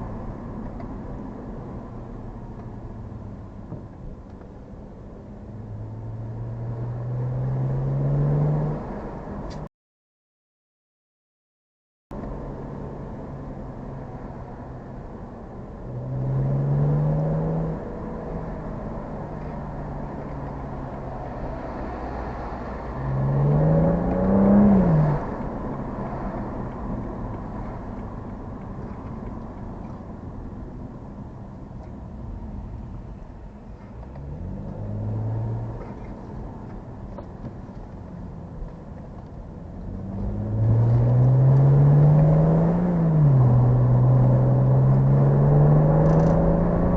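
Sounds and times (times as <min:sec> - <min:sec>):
car engine accelerating: 0:05.4 - 0:09.7, 0:15.6 - 0:30.1, 0:33.8 - 0:38.0, 0:38.6 - 0:46.9.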